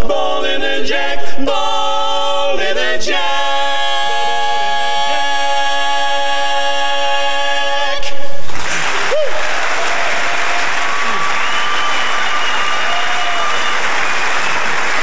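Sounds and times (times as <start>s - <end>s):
a cappella vocal chord: 0.0s - 8.4s
audience applause: 8.5s - 15.0s
whistling: 10.9s - 15.0s.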